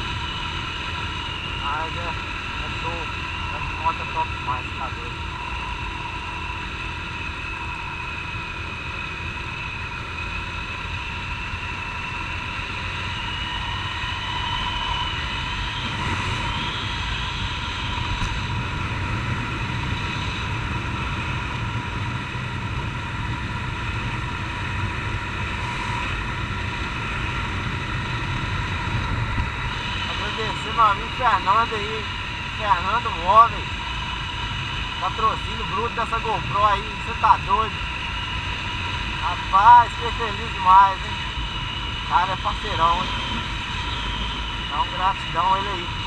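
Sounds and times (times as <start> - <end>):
wind noise: 0.0 - 46.0.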